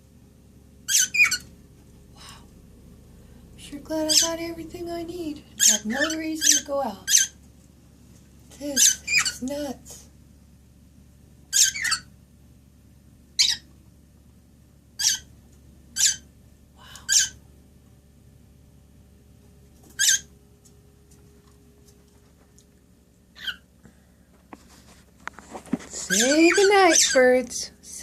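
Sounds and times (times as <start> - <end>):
high-pitched bird chirps: 0.9 - 1.5, 4.1 - 4.4, 5.6 - 7.4, 8.7 - 9.5, 11.5 - 12.1, 13.4 - 13.7, 15.0 - 15.3, 16.0 - 16.3, 17.0 - 17.4, 20.0 - 20.3, 23.4 - 23.7, 26.1 - 27.4.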